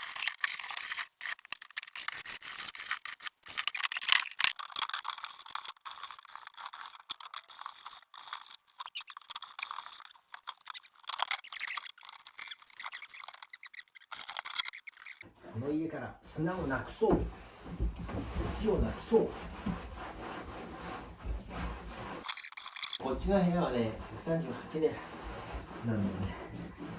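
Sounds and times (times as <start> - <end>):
scrubbing wooden floorboards: 15.0 - 26.9.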